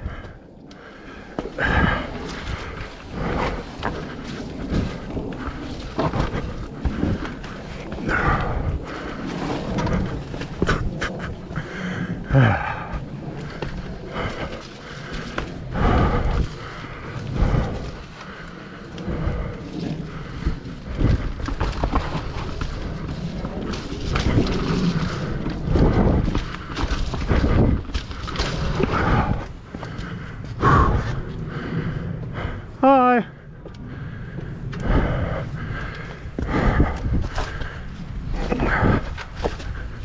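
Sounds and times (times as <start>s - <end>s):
person breathing hard: 0.0s - 40.0s
bike knocking on rough trail: 0.1s - 32.0s.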